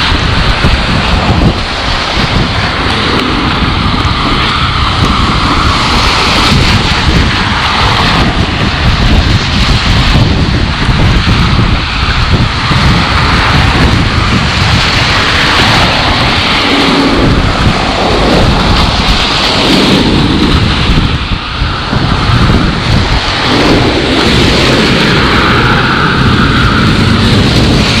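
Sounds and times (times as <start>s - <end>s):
storm wind rushing: 0.0s - 28.0s
wind buffeting microphone: 0.0s - 28.0s.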